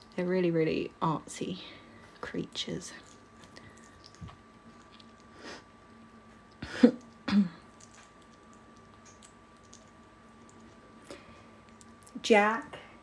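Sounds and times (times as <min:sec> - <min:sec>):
faint steady hum: 0:00.0 - 0:13.0
person clearing throat: 0:06.6 - 0:07.6.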